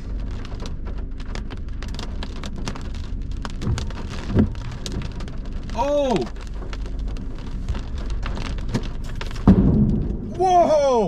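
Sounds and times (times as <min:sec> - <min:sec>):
low rumble: 0:00.0 - 0:11.0
raindrops clicking: 0:00.0 - 0:11.0
dull low thuds: 0:03.0 - 0:05.7, 0:06.5 - 0:10.8.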